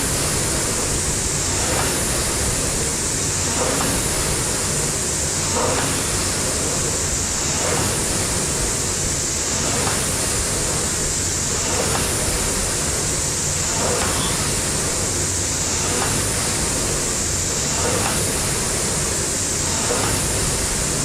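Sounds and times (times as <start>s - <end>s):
rowing machine fan whooshing: 0.0s - 21.0s.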